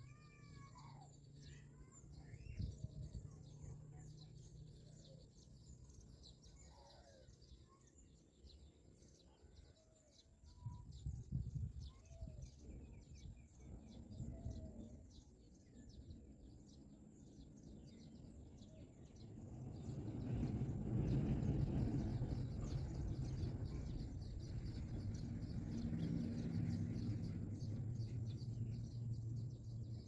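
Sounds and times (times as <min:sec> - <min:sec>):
low rumbling: 0:19.6 - 0:30.0.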